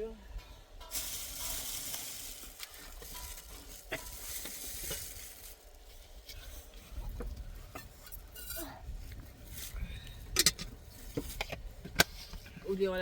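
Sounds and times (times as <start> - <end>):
food sizzling over fire: 0.8 - 5.9.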